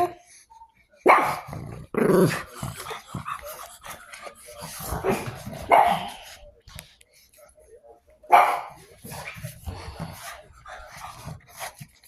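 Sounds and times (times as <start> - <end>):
dog barking: 1.0 - 1.5, 8.3 - 8.8.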